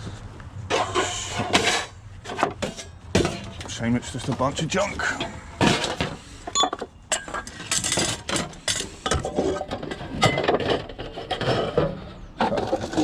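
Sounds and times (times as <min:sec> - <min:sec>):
metal scrap clinking and rattling: 0:00.7 - 0:03.8, 0:07.1 - 0:13.0.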